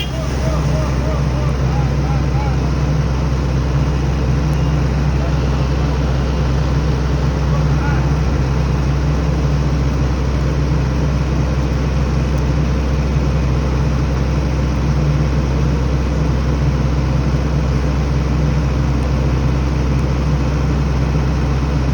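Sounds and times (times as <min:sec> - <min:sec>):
heavy vehicle engine drone: 0:00.0 - 0:21.9.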